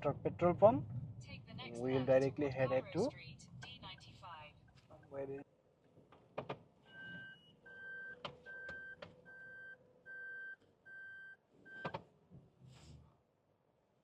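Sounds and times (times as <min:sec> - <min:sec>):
car warning chime beeping: 0:06.9 - 0:11.9.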